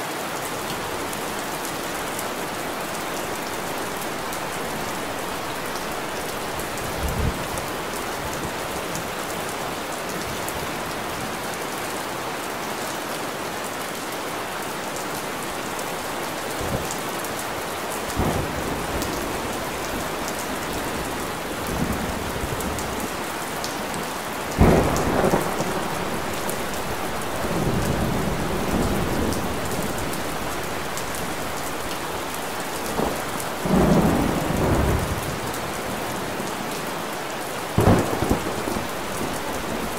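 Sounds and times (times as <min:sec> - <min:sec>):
rain hissing: 0:01.1 - 0:07.9, 0:24.4 - 0:39.9
low thunder rumbles: 0:24.6 - 0:36.2.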